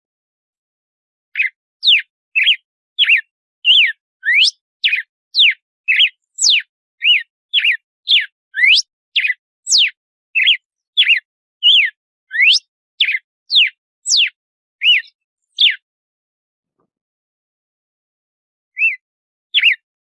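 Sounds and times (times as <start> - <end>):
bird singing whistled notes: 1.3 - 15.9, 18.7 - 19.8.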